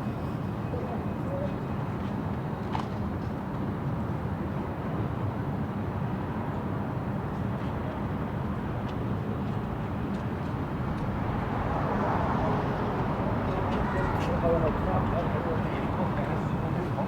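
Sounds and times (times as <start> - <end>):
traffic rumble: 9.7 - 17.0
murmur of people: 12.4 - 17.0.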